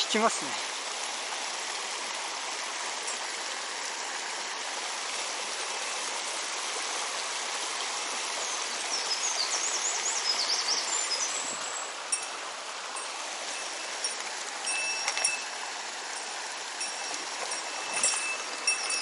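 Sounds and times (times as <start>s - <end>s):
mountain stream rushing: 0.0s - 19.0s
bird singing: 8.4s - 11.8s.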